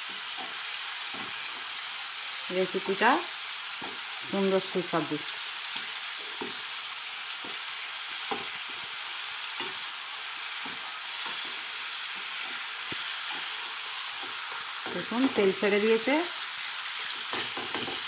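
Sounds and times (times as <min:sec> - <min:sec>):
chicken sizzling in oil: 0:00.0 - 0:18.0
spatula scraping a pan: 0:07.4 - 0:15.6.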